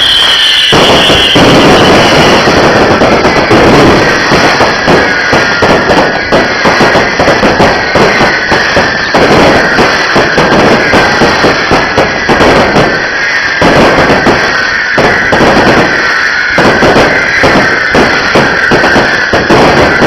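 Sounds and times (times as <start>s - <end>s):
high falling tone: 0.0s - 4.9s
fireworks banging and crackling: 0.0s - 20.0s.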